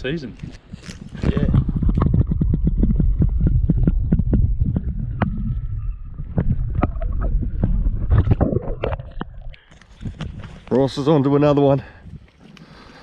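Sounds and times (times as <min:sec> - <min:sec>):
wind buffeting microphone: 0:00.0 - 0:12.3.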